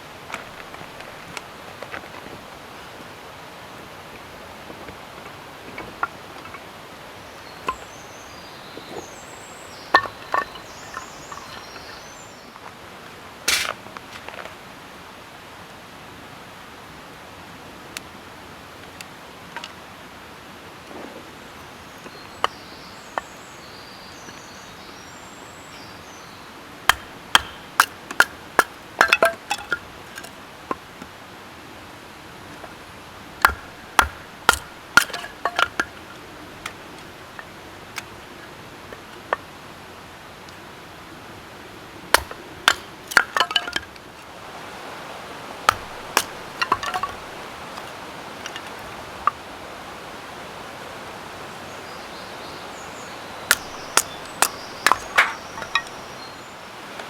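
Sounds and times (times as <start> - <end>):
steady outdoor background noise: 0.0 - 57.0
sharp clicks and knocks: 33.4 - 35.9, 45.7 - 48.8, 53.5 - 56.0.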